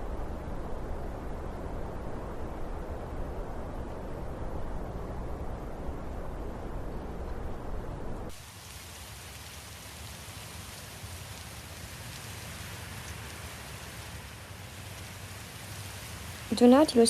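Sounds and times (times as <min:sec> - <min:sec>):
heavy rain: 0:07.6 - 0:17.0.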